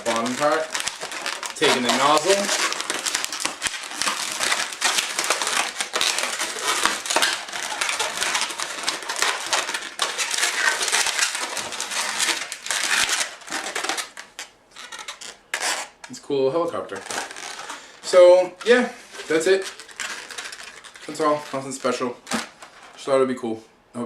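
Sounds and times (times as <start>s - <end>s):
balloons rubbing and crackling: 0.0s - 23.1s.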